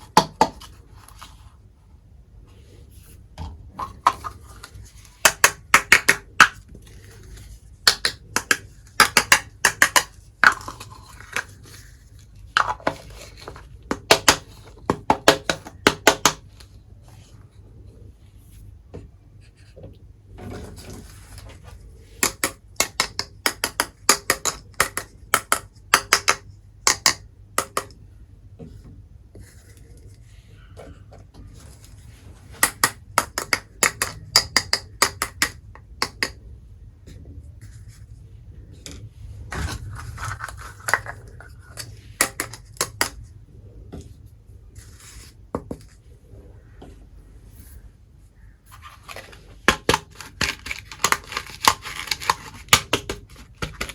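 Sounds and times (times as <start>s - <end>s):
toy dishes clicking and tapping: 7.8s - 11.7s, 22.2s - 28.0s, 32.6s - 36.4s, 40.2s - 43.2s, 49.7s - 53.9s.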